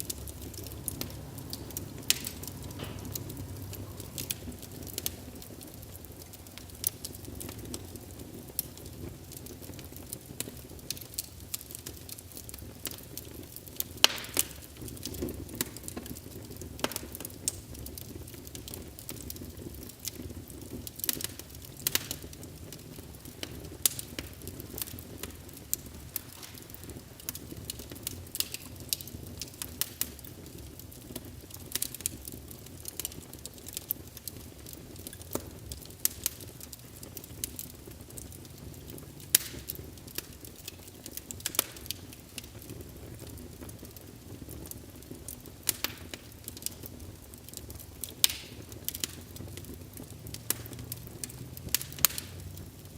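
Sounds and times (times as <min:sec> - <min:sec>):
fire crackles and pops: 0:00.0 - 0:52.9
low rush of flames: 0:00.0 - 0:52.9.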